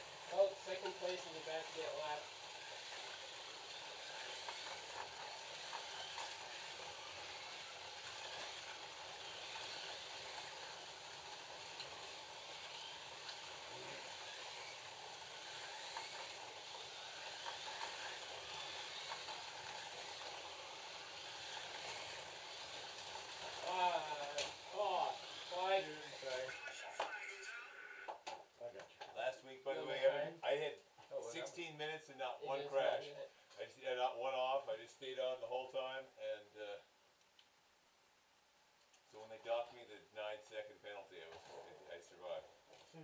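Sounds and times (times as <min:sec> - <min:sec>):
slot car motors whirring: 0:00.0 - 0:28.2.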